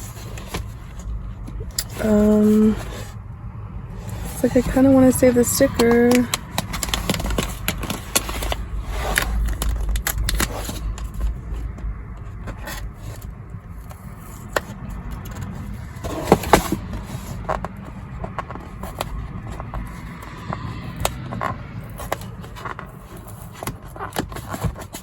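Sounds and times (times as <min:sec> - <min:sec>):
wind rumble: 0:00.0 - 0:24.0
passing traffic: 0:00.0 - 0:25.0
hands peeling cardboard package: 0:05.8 - 0:13.2.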